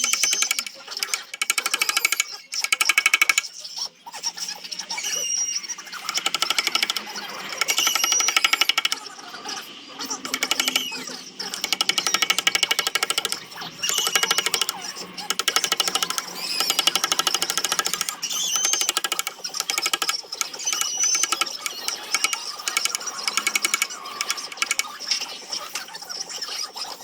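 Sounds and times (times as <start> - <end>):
power sander rattling on wood: 10.3 - 10.8, 11.5 - 24.9.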